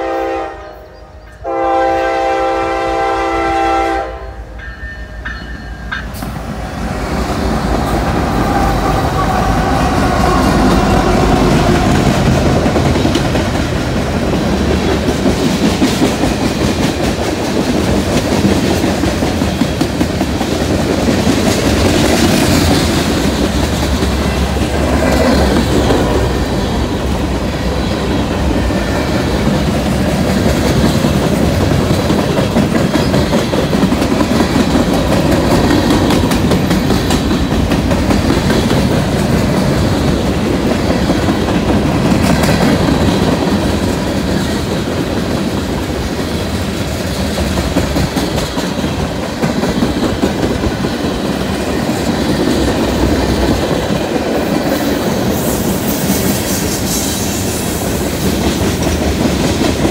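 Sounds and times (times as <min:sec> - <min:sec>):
freight train rumbling past: 0:00.0 - 0:59.9
wheels clacking over rail joints: 0:04.6 - 0:56.3.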